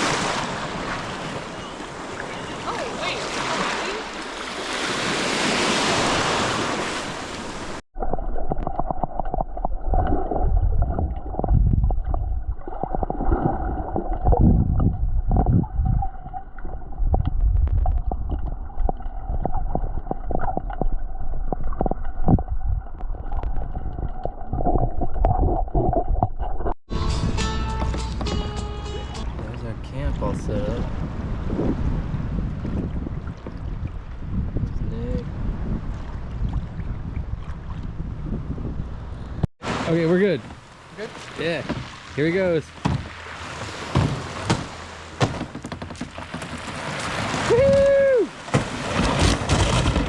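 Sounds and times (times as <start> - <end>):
water gurgling and sloshing: 0.0 - 26.8, 28.8 - 50.0
wind noise on microphone: 8.4 - 39.5, 47.2 - 50.0.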